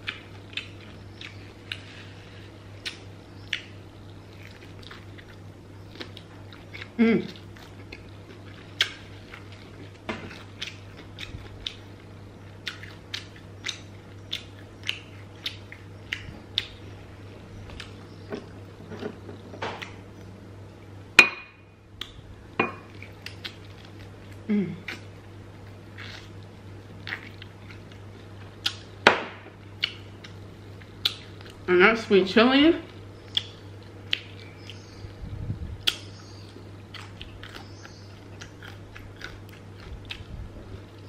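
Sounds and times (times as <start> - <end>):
chewing fried chicken: 0.0 - 20.0, 22.9 - 29.0, 29.6 - 31.7, 32.8 - 35.2, 35.8 - 41.0
low steady hum: 0.0 - 41.0
wet mouth clicks and smacks: 33.3 - 34.4, 35.8 - 36.1.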